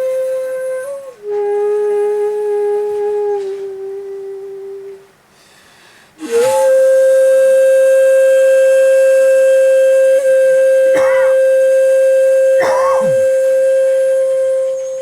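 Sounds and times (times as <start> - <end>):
bamboo flute held notes: 0.0 - 5.1, 6.2 - 15.0
brief wavering cry: 10.9 - 11.5, 12.6 - 13.4.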